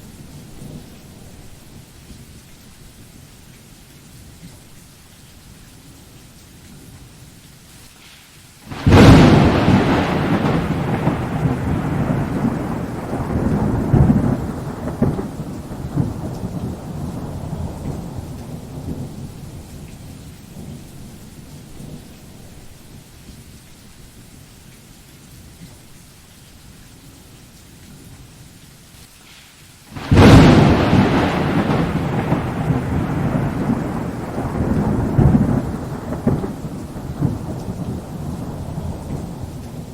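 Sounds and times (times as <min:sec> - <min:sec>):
steady rain: 0:00.0 - 0:39.9
thunderclap rolling rumble: 0:08.7 - 0:22.8, 0:30.0 - 0:39.9.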